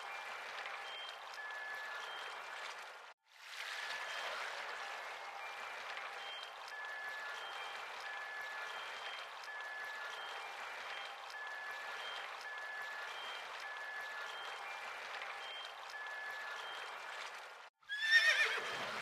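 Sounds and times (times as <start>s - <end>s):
horse whinnying: 17.9s - 18.9s.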